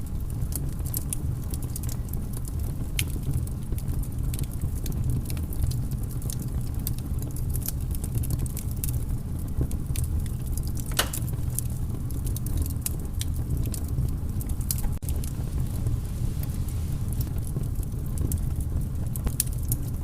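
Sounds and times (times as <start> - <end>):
low fire rumble: 0.0 - 20.0
wood fire crackling and popping: 0.0 - 20.0.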